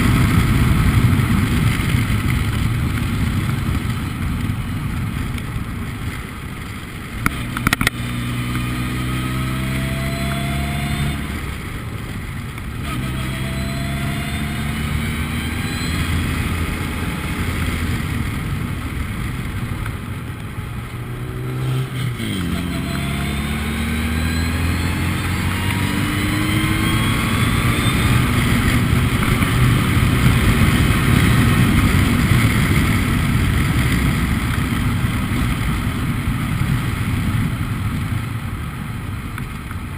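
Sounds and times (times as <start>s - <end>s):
wind and road noise: 0.0s - 39.9s
race car engine accelerating: 7.3s - 11.6s, 12.8s - 18.0s, 21.2s - 30.6s.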